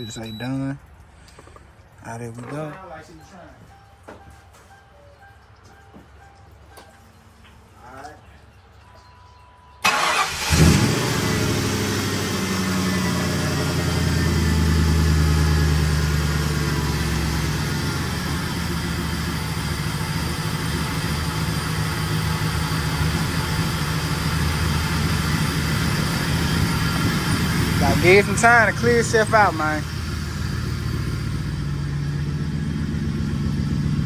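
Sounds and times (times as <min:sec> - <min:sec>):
car engine starting and idling: 0:09.8 - 0:34.0.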